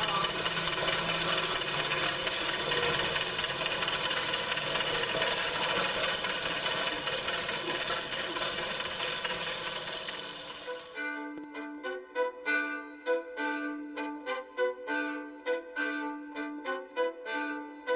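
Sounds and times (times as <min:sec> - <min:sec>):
farm machinery engine drone: 0:00.0 - 0:11.0.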